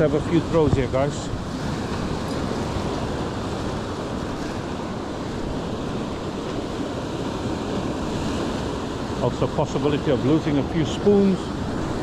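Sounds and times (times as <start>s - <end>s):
wind buffeting microphone: 0.0s - 9.2s
surf washing on beach: 0.0s - 12.0s.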